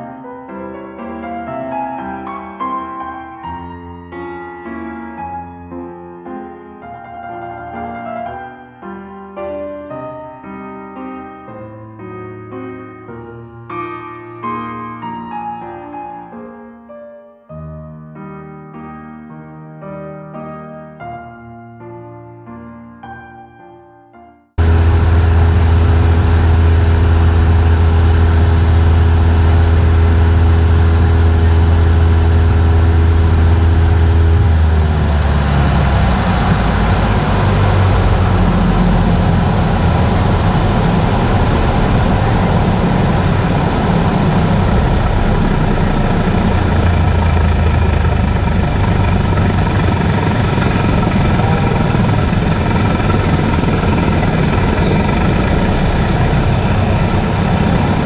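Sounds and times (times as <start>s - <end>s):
airflow noise: 24.6s - 58.0s
propeller plane engine drone: 24.6s - 58.0s.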